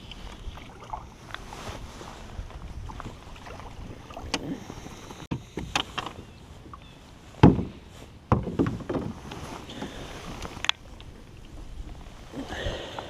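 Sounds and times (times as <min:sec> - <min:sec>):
knocks and clicks of gear: 0:05.3 - 0:06.8
thump against kayak hull: 0:07.4 - 0:09.2.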